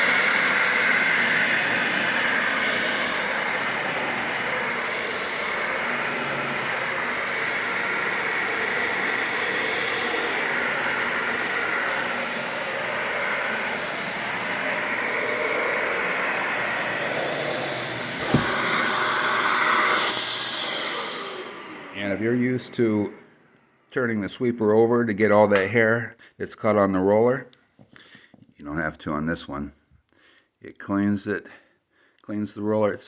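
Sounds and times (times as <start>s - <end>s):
vacuum cleaner running: 0.0s - 24.6s.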